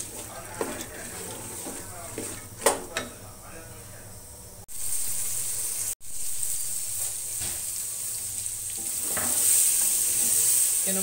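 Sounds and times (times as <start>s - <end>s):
chickpeas sizzling in oil: 0.0s - 3.0s, 4.6s - 11.0s
wooden spoon stirring: 0.0s - 3.1s.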